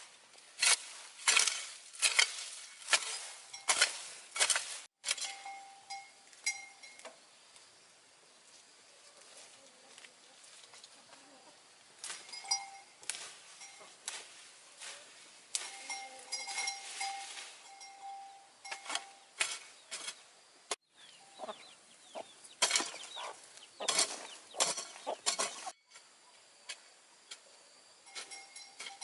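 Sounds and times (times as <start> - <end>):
chickens clucking: 21.0 - 25.7.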